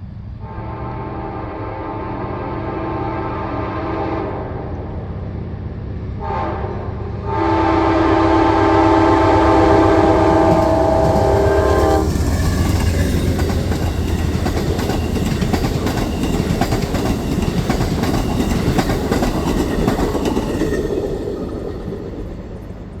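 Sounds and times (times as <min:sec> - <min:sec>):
diesel locomotive rumble: 0:00.0 - 0:23.0
locomotive horn blasts: 0:00.4 - 0:04.7, 0:06.2 - 0:12.2
train wheels clicking over rails: 0:10.0 - 0:23.0.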